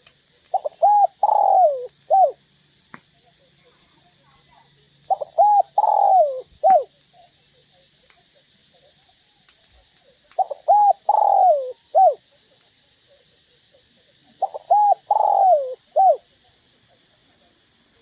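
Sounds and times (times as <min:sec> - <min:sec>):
dove cooing: 0:00.5 - 0:02.4, 0:05.1 - 0:06.9, 0:10.4 - 0:12.2, 0:14.3 - 0:16.3.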